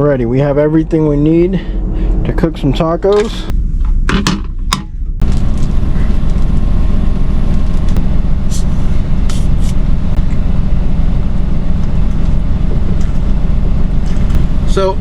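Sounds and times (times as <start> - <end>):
truck diesel engine idling: 5.2 - 15.0.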